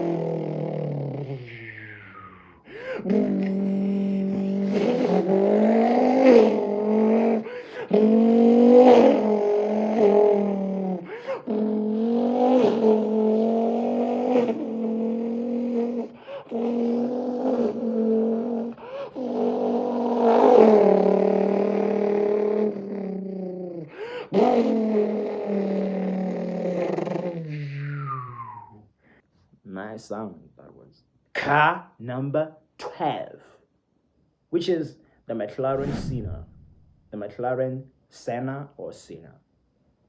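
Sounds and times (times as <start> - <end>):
man imitating car engine: 0.0 - 27.0.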